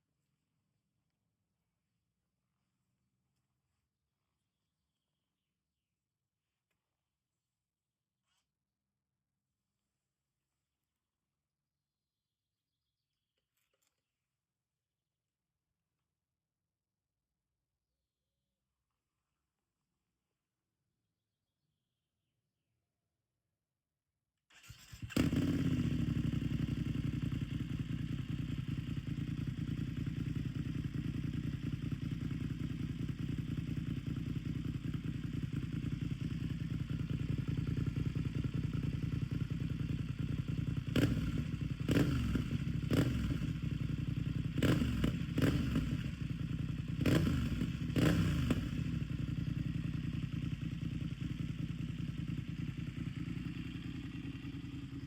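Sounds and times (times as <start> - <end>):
motorcycle engine starting and idling: 24.5 - 55.0.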